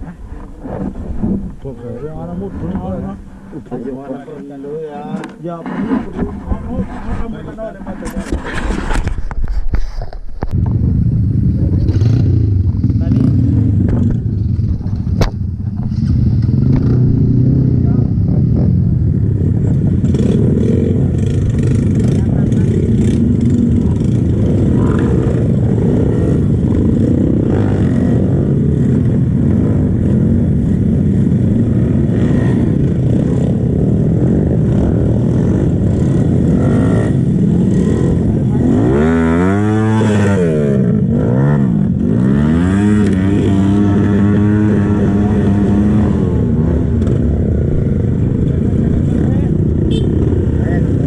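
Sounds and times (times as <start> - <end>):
motorbike engine revving: 10.5 - 51.0.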